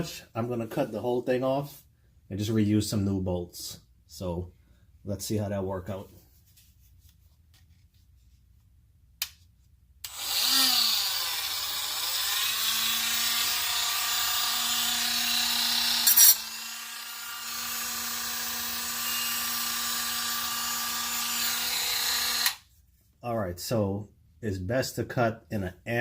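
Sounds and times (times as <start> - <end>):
rotary tool cutting metal: 10.0 - 22.6.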